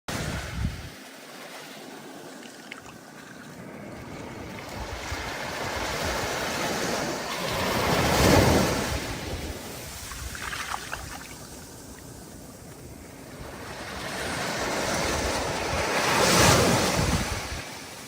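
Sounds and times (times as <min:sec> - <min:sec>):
stormy ocean surf: 0:00.1 - 0:18.0.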